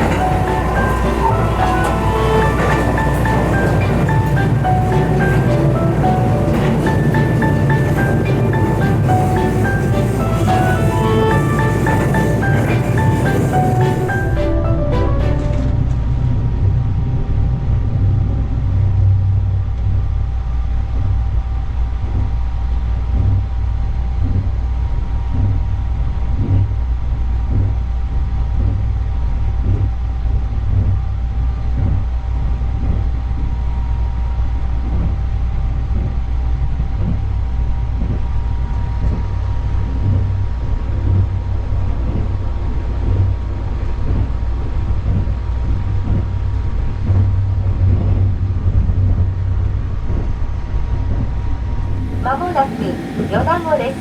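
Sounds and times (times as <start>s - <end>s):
wheels knocking on track: 0.0s - 16.2s, 51.8s - 54.0s
faint steady tones: 0.0s - 20.2s, 50.9s - 54.0s
train running rumble: 0.0s - 54.0s.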